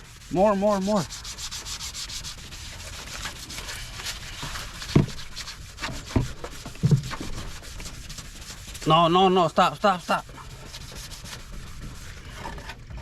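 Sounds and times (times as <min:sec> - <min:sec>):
sandpaper strokes: 0:00.0 - 0:12.7
dull thumps: 0:05.9 - 0:07.5.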